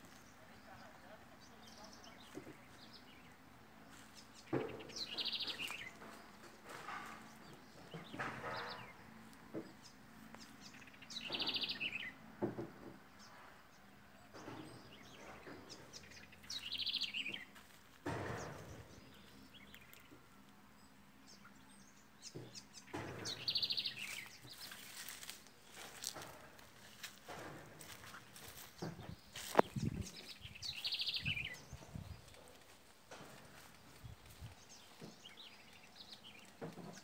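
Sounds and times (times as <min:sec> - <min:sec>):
brush and twigs rustling: 0:23.4 - 0:37.0.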